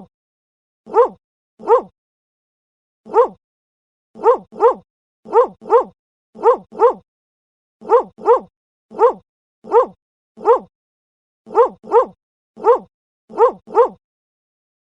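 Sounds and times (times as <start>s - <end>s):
dog barking: 0.9s - 1.9s, 3.1s - 3.4s, 4.2s - 7.0s, 7.8s - 10.7s, 11.5s - 14.0s.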